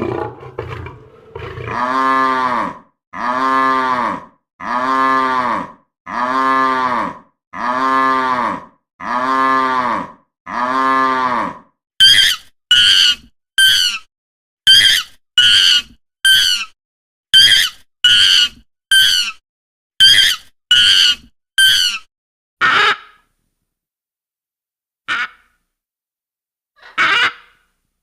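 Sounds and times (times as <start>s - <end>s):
cow mooing: 0.0s - 11.7s.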